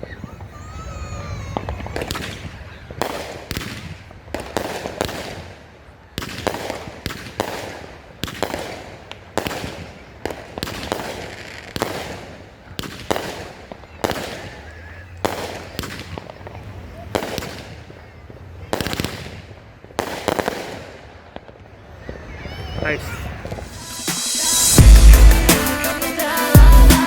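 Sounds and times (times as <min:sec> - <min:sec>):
firework cake shots firing: 0:15.2 - 0:18.0, 0:18.7 - 0:21.5, 0:23.4 - 0:24.8.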